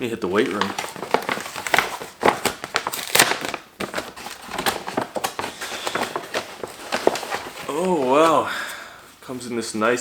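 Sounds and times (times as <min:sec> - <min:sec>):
package being torn open: 0:00.4 - 0:07.9.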